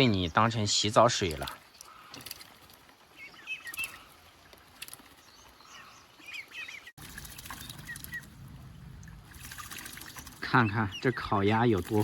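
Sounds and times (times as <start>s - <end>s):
light splashing clicks: 1.1s - 2.8s.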